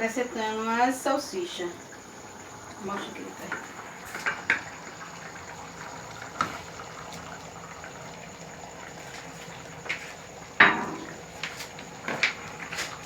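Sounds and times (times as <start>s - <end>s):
sausages hissing in pan: 0.0s - 13.0s.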